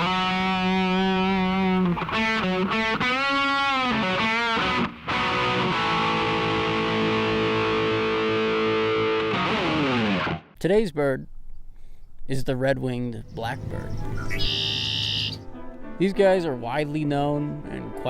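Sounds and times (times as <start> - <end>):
guitar bending notes and chord: 0.0 - 10.5.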